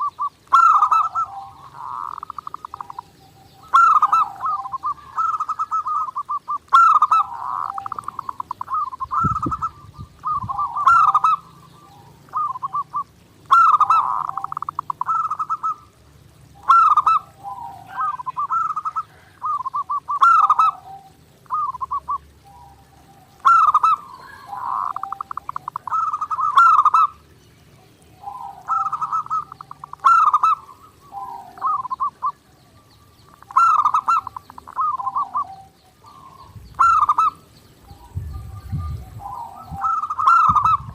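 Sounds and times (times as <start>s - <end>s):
doves cooing: 0.0s - 40.9s.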